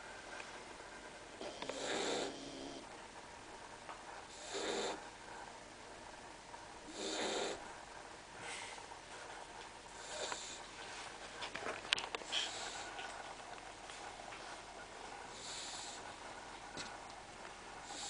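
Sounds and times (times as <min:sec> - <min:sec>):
puppy snoring: 0:01.4 - 0:02.9, 0:04.3 - 0:05.1, 0:06.9 - 0:07.7, 0:10.0 - 0:10.6, 0:12.2 - 0:13.2, 0:15.3 - 0:16.2.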